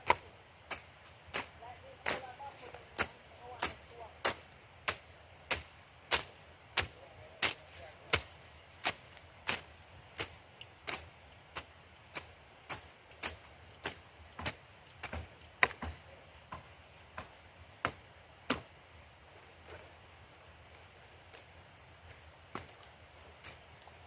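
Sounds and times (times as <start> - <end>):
hand tool chopping hard material: 0.0 - 9.6, 10.9 - 18.7.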